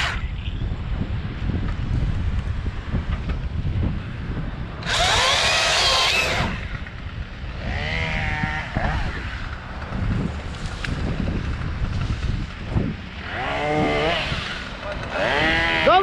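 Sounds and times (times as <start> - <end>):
wind buffeting microphone: 0.0 - 16.0
chainsaw revving: 4.8 - 6.7, 7.5 - 9.6, 13.2 - 16.0.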